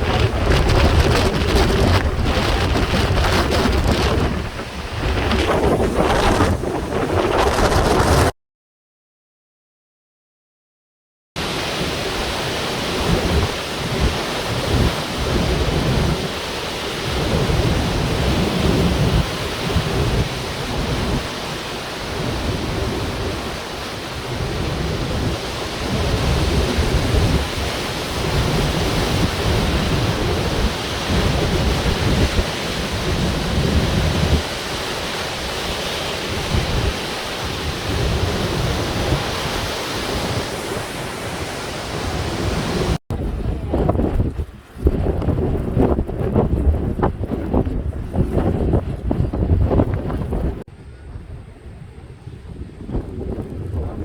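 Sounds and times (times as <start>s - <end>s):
heavy surf crashing: 0.0s - 8.3s, 11.4s - 54.0s
wind buffeting microphone: 0.0s - 8.3s, 11.6s - 54.0s.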